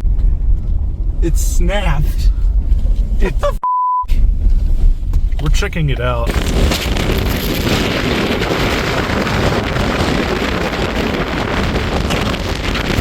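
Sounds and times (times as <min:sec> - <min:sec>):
storm wind buffeting microphone: 0:04.2 - 0:13.0.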